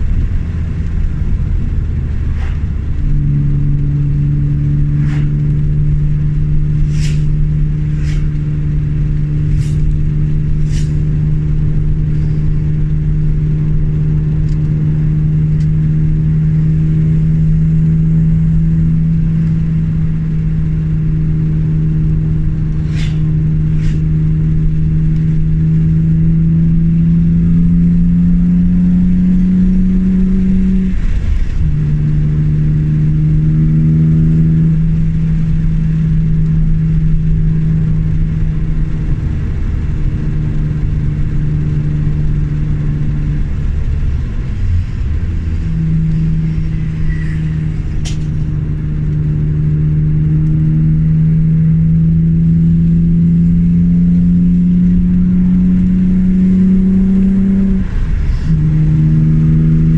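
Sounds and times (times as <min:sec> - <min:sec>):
car engine pulling: 0:00.0 - 0:59.9
sharp click: 0:48.0 - 0:48.4.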